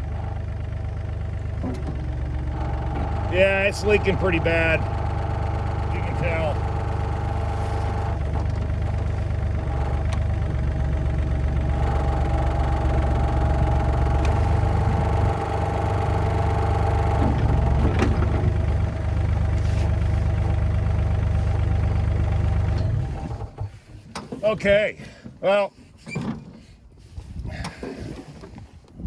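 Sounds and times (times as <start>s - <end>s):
excavator engine running: 0.0s - 24.8s.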